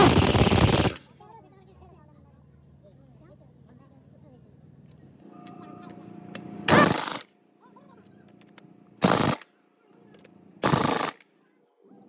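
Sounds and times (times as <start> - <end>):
power tool rattling: 0.0 - 1.0, 6.7 - 7.3, 9.0 - 9.4, 10.6 - 11.2.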